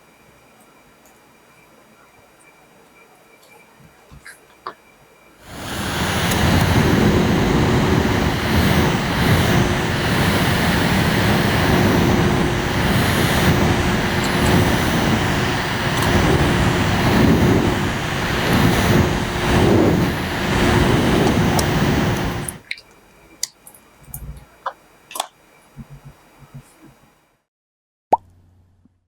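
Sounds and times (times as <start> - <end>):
air rushing from fan: 5.4 - 22.7
steady motor hum: 5.4 - 24.7, 25.8 - 27.0.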